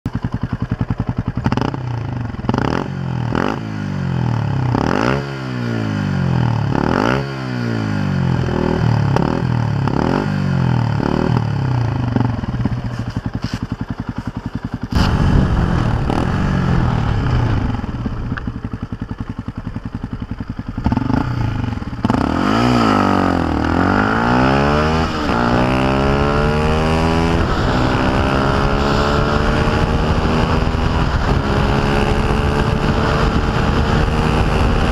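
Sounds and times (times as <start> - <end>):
motorcycle engine revving: 0.1 - 34.9
wind noise: 14.9 - 20.8, 21.8 - 34.9.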